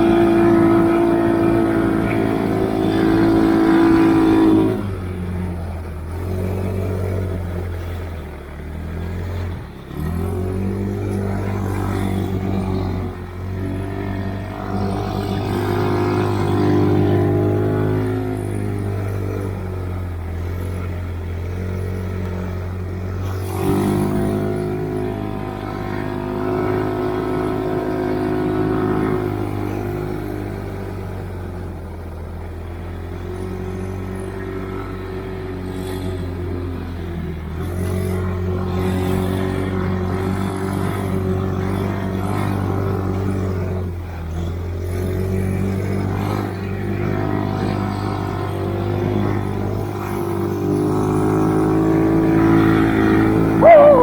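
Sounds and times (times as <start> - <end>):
snowmobile engine revving: 51.7 - 54.0.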